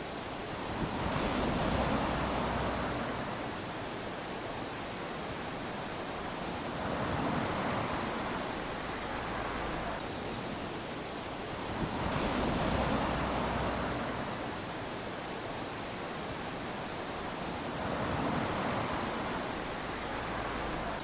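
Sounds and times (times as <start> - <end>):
small waves lapping on sand: 0.0 - 21.0.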